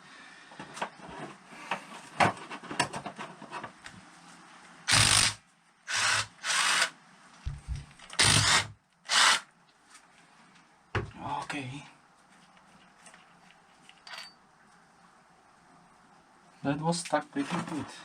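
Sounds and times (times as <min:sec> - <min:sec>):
power tool bursts: 0:04.9 - 0:06.9, 0:08.2 - 0:09.5
light clicks and handling noises: 0:11.4 - 0:14.8.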